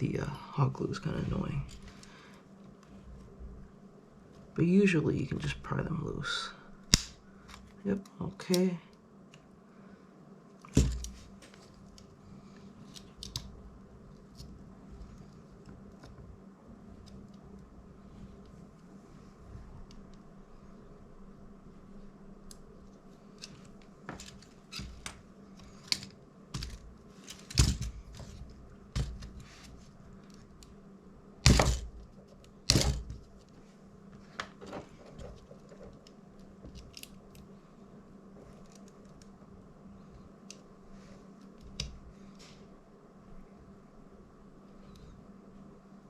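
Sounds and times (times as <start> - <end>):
glue cracking: 6.8 - 7.6.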